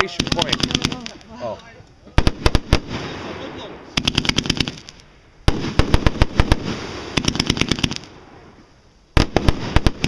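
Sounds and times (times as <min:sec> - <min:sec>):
fireworks cracks and bangs: 0:00.0 - 0:08.5, 0:09.2 - 0:10.0
lingering rumble of fireworks: 0:00.0 - 0:10.0.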